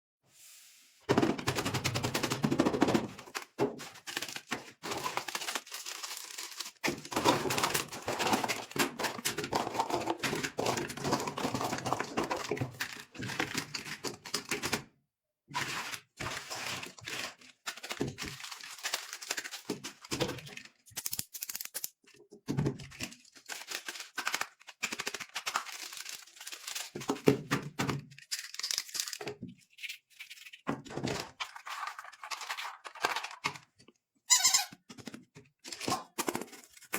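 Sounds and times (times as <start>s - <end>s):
packaging crinkling and tearing: 3.3s - 14.6s, 15.6s - 21.9s, 22.9s - 27.4s, 28.1s - 33.7s.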